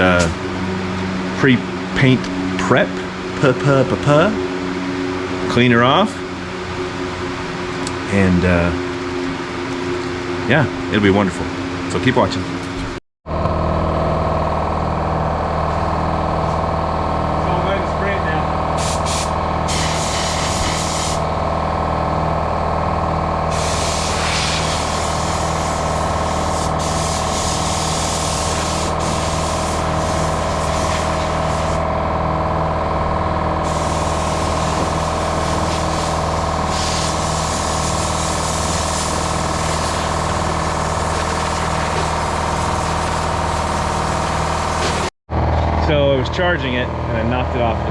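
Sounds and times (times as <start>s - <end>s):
air compressor humming: 0.0s - 11.9s, 12.5s - 47.9s
compressed air blow gun hissing: 18.8s - 21.3s, 23.5s - 31.8s, 33.6s - 45.1s.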